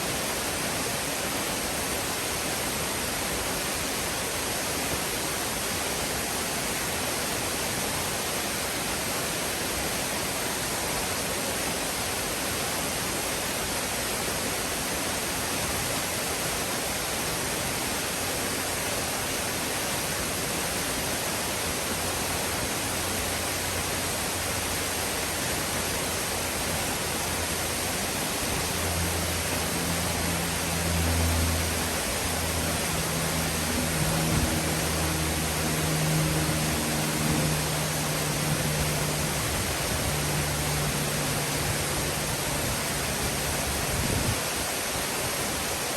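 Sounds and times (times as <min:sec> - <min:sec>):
waterfall rushing: 0:00.0 - 0:45.9
low engine drone: 0:21.4 - 0:44.4.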